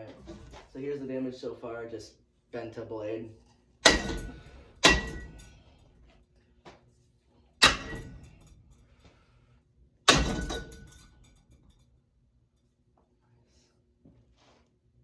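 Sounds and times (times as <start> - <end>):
strikes on a ceiling fan: 3.8 - 5.6, 7.6 - 8.6, 10.1 - 11.4.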